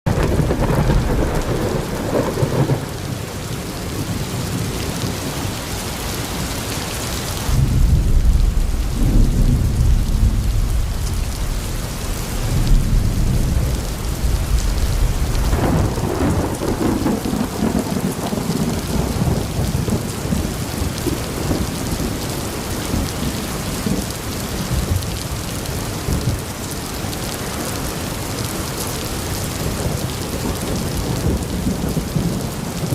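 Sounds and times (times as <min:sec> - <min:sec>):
rolling thunder: 0:00.1 - 0:03.3, 0:07.4 - 0:26.5, 0:29.5 - 0:32.9
steady rain: 0:00.1 - 0:32.9.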